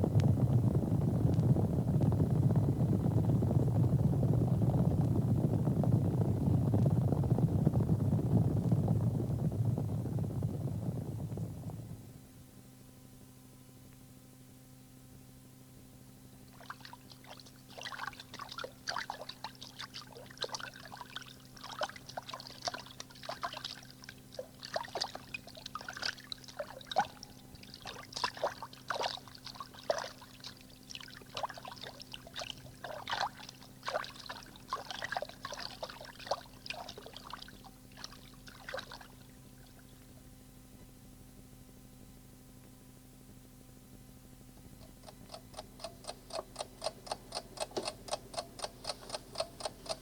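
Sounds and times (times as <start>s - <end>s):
low tape hum: 0.0s - 50.0s
water splashes and trickles: 16.5s - 39.9s.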